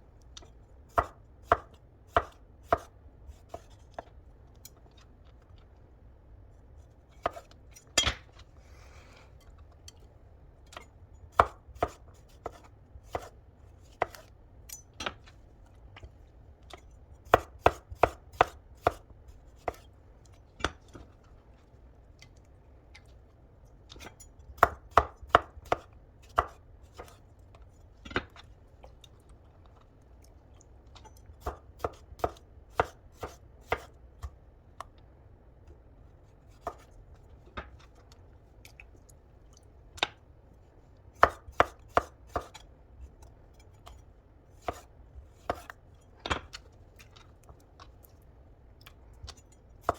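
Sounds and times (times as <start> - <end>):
knife chopping on cutting board: 0.9 - 3.8, 11.4 - 14.3, 17.3 - 19.0, 19.6 - 19.8, 24.6 - 27.2, 31.4 - 34.4, 36.6 - 36.9, 41.2 - 42.6, 44.6 - 45.8.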